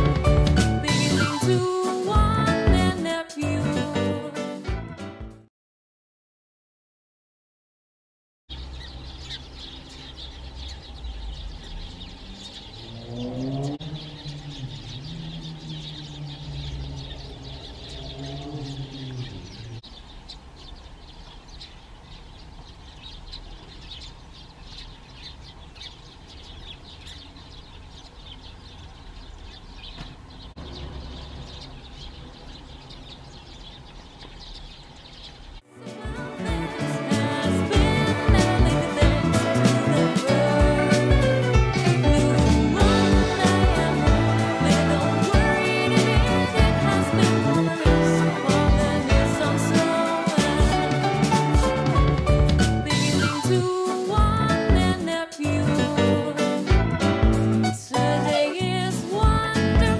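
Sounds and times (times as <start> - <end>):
flock of finches twittering: 8.5 - 35.6
engine running: 8.6 - 19.8.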